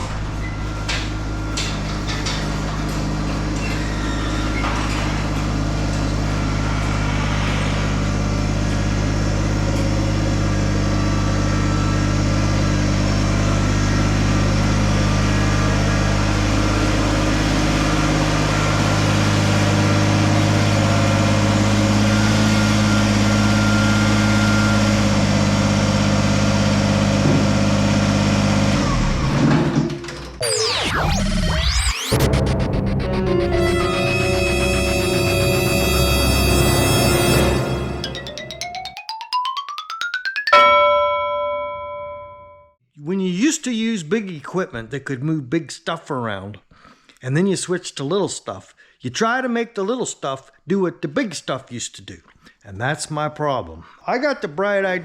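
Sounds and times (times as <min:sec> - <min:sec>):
tractor engine running: 0:00.0 - 0:30.3.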